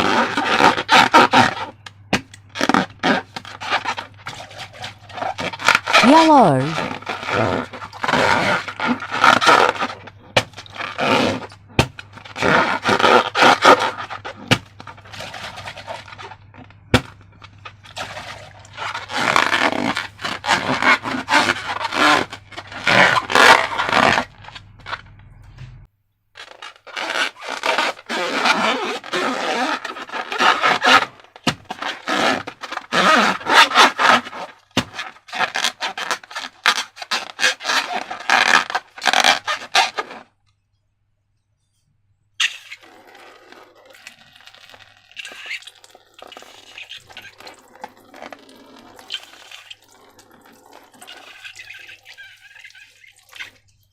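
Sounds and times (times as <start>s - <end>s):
slime squelching and crackling: 0.0s - 25.2s, 42.4s - 53.9s.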